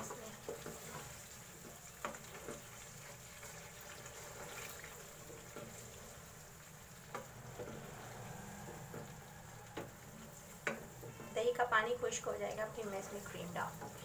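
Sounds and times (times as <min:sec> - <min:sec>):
curry sizzling in a pan: 0:00.0 - 0:14.0
wooden spoon stirring: 0:00.0 - 0:14.0
spoon knocking against pan: 0:08.6 - 0:10.0, 0:10.6 - 0:11.2.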